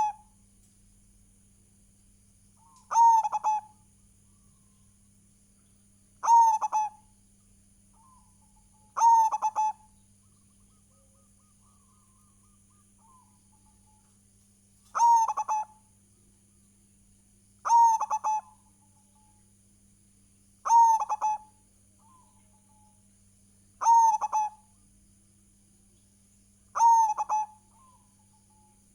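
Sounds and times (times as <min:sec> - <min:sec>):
dove cooing: 0:00.0 - 0:00.4, 0:02.6 - 0:03.8, 0:06.2 - 0:07.1, 0:08.0 - 0:14.0, 0:14.9 - 0:15.9, 0:17.6 - 0:18.7, 0:20.6 - 0:22.8, 0:23.8 - 0:24.7, 0:26.7 - 0:28.7
faint steady hum: 0:00.0 - 0:28.9.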